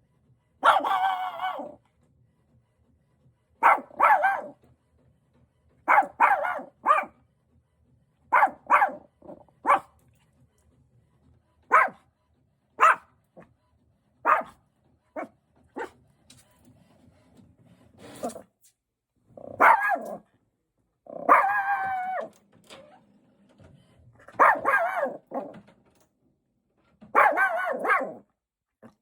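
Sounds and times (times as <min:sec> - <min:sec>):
dog barking: 0:00.6 - 0:01.8, 0:03.6 - 0:04.6, 0:05.9 - 0:07.2, 0:08.3 - 0:10.0, 0:11.7 - 0:12.0, 0:12.8 - 0:13.1, 0:14.2 - 0:14.6, 0:15.2 - 0:16.0, 0:19.4 - 0:20.2, 0:21.1 - 0:22.3, 0:24.3 - 0:25.6, 0:27.1 - 0:28.2.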